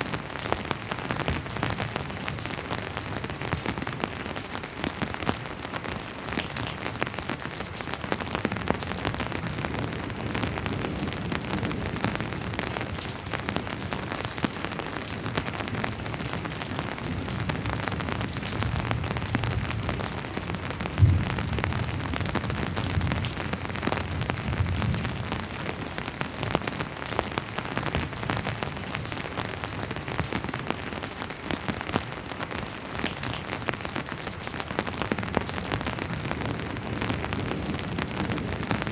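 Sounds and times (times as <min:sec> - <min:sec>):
rain on a hard surface: 0:00.0 - 0:38.9
distant thunder rumble: 0:20.8 - 0:25.2.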